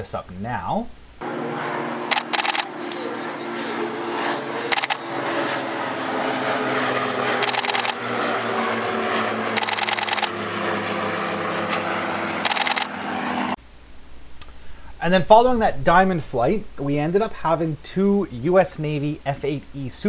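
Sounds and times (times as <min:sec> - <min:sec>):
propeller aircraft droning: 0:01.2 - 0:13.6
camera shutter clicks: 0:02.1 - 0:02.7, 0:04.7 - 0:05.0, 0:07.4 - 0:08.0, 0:09.6 - 0:10.3, 0:12.4 - 0:12.9.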